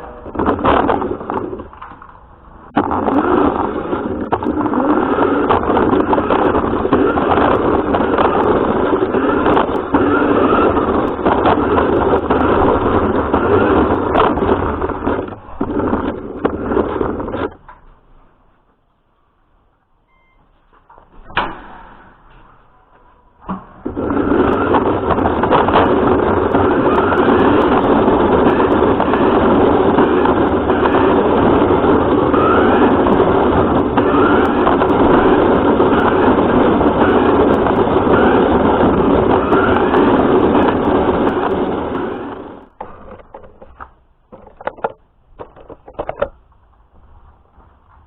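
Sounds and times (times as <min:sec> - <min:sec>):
radio-controlled car motor whirring: 0:02.8 - 0:17.6, 0:23.8 - 0:43.6.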